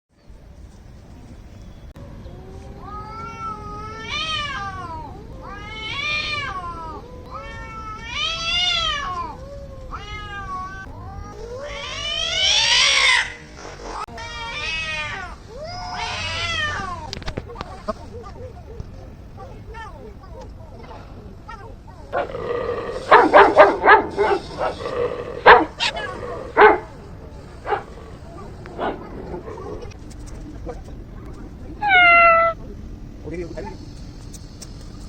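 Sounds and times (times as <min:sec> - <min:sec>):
cats yowling in a fight: 0:02.4 - 0:17.2, 0:22.2 - 0:30.0, 0:31.8 - 0:32.6.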